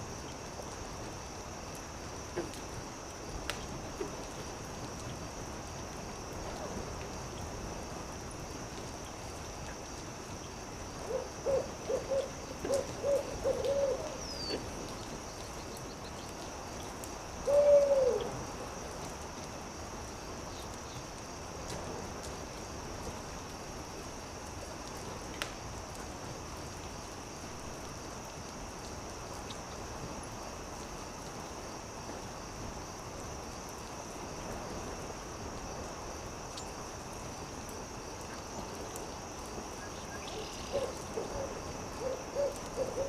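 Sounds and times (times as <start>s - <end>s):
campfire crackling: 0.0s - 43.0s
steady hiss: 0.0s - 43.0s
owl hooting: 11.1s - 14.6s, 17.4s - 18.3s, 40.1s - 43.0s.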